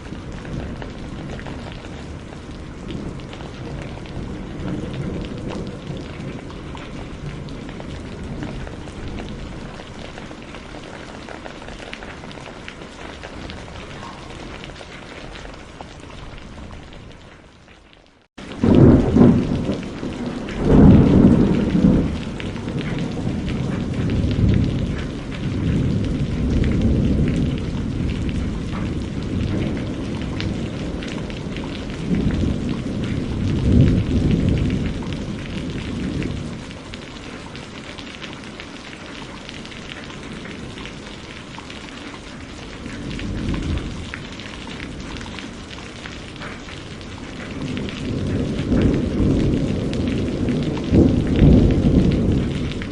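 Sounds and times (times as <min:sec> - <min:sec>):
rolling thunder: 0:00.0 - 0:17.2, 0:18.4 - 0:37.7, 0:42.6 - 0:52.9
steady rain hissing: 0:00.0 - 0:52.9.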